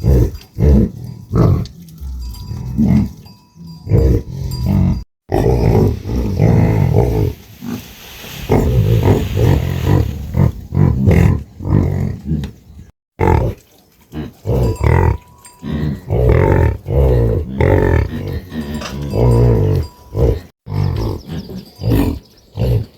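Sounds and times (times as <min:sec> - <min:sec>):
cattle mooing: 0:14.2 - 0:21.5.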